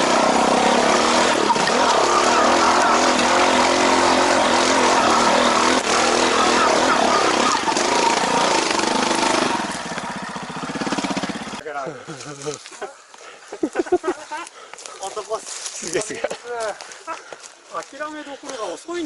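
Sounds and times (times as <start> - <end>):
motorcycle engine revving hard: 0.0 - 11.6.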